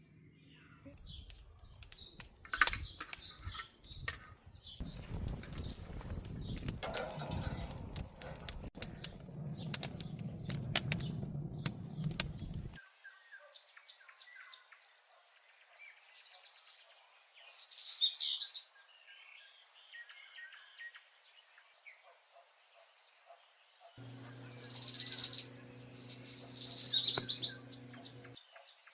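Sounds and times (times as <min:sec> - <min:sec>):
small birds chirping: 0:00.0 - 0:22.1, 0:22.7 - 0:28.9
low rumble: 0:04.8 - 0:12.8
loud bird calls: 0:24.0 - 0:28.7.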